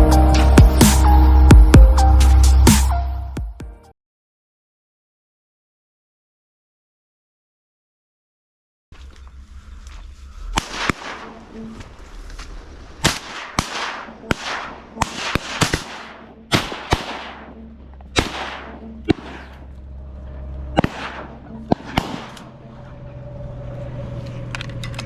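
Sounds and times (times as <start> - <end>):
shotgun blasts with echo: 10.6 - 11.7, 13.0 - 19.7, 20.8 - 22.6.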